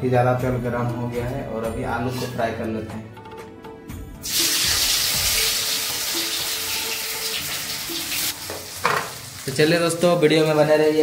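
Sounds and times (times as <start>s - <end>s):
potatoes frying in hot oil: 4.2s - 11.0s.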